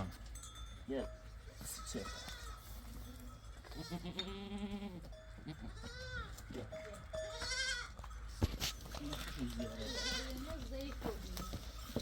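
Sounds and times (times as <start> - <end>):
goats bleating: 2.0 - 2.7, 3.7 - 8.0, 9.1 - 10.6.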